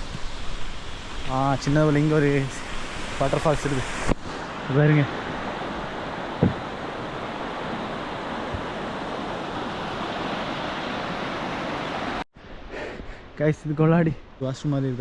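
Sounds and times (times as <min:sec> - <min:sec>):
small waterfall rushing: 0:00.0 - 0:12.2
brief knock: 0:06.4 - 0:06.6.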